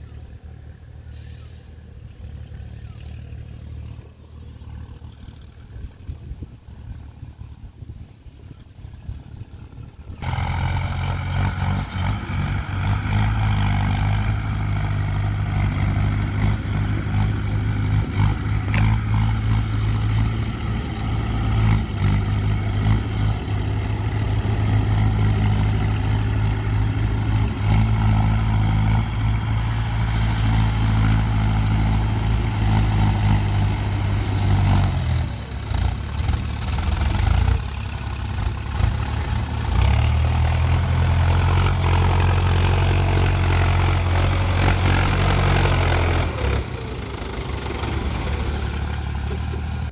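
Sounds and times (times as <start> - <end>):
diesel tractor engine running: 0.0 - 49.9
clatter: 10.2 - 20.8, 21.4 - 49.9.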